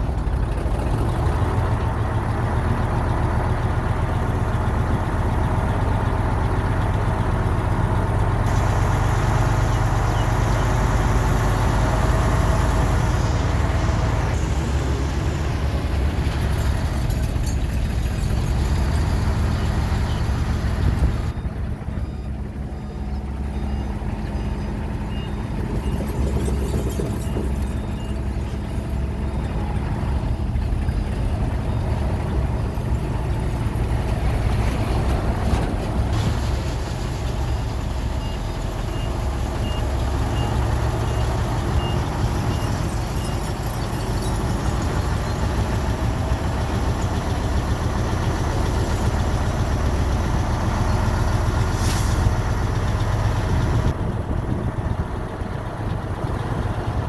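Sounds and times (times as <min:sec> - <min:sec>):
diesel machinery running: 0:00.0 - 0:57.0
reversing alarm beeping: 0:18.8 - 0:33.5, 0:38.0 - 0:46.7.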